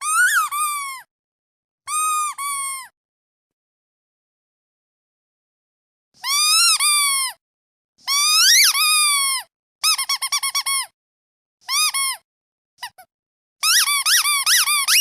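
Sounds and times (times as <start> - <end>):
squeaky toy duck squeaking: 0.0 - 1.1, 1.9 - 2.9, 6.2 - 7.4, 8.0 - 10.9, 11.6 - 12.2, 12.8 - 15.0.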